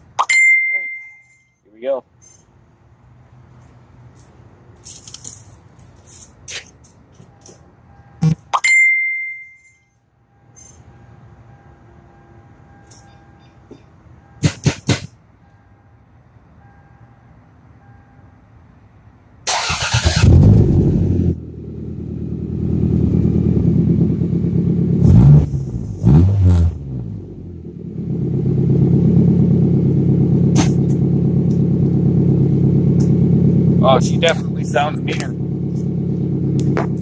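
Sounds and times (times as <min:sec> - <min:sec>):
car engine starting and idling: 0:19.4 - 0:37.0.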